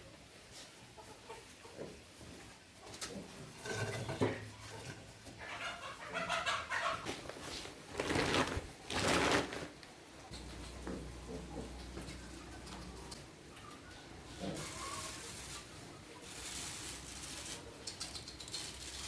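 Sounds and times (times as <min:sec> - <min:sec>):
farm animals calling: 0:02.9 - 0:07.5, 0:10.3 - 0:16.3.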